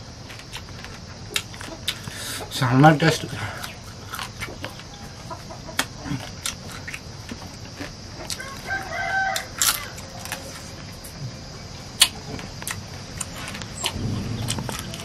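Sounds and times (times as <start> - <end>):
crunchy food being chewed: 0.1 - 11.2, 11.9 - 15.0
rooster crowing: 4.6 - 5.8, 8.2 - 10.6.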